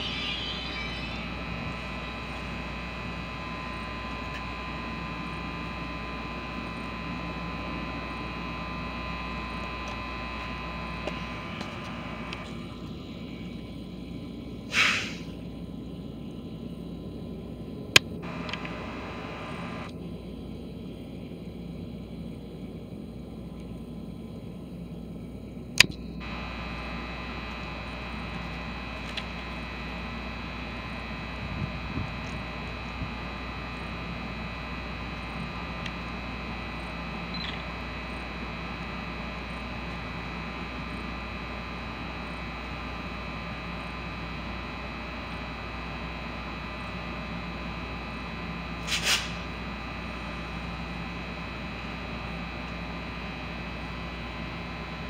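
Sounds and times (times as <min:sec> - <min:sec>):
train electrical hum: 0:00.0 - 0:55.0
short burst of noise: 0:14.7 - 0:15.3, 0:48.8 - 0:49.5
sharp clicks: 0:18.0 - 0:19.9.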